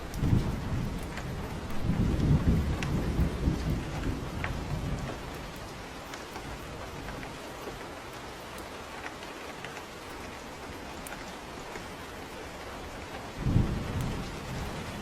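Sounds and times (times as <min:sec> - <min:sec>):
thunder rumble: 0:00.0 - 0:07.8, 0:12.6 - 0:15.0
rain falling: 0:00.0 - 0:15.0.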